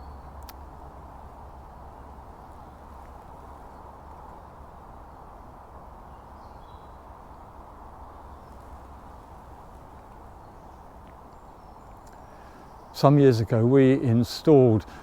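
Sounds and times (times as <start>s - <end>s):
faint bird chirp: 0.0s - 0.4s, 6.0s - 13.3s
faint woodland background noise: 0.0s - 15.0s.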